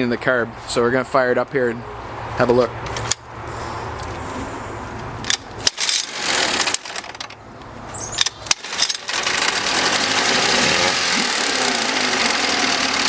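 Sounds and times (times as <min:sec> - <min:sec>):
outboard motor pops and sputters: 0:08.2 - 0:13.0
outboard motor running: 0:08.6 - 0:13.0.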